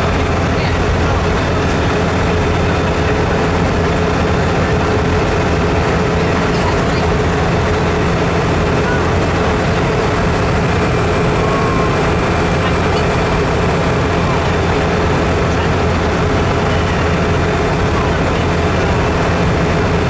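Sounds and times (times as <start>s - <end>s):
heavy vehicle engine drone: 0.0s - 20.0s
road noise: 0.0s - 20.0s.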